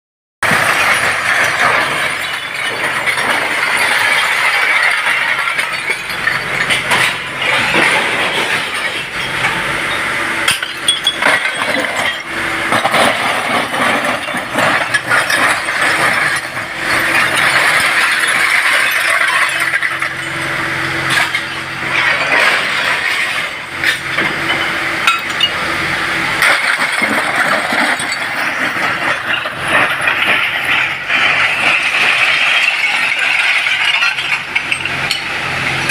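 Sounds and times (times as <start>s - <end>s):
bulldozer clanking metal and stone: 0.4s - 35.9s.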